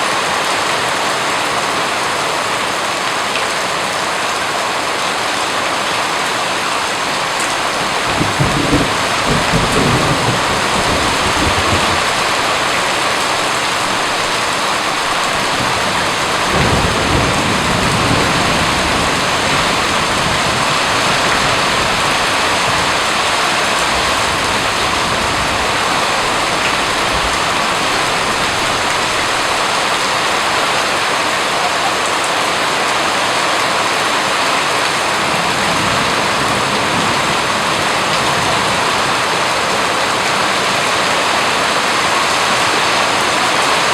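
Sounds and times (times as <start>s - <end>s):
steady rain: 0.0s - 43.9s
thunder rumbling: 7.7s - 30.8s.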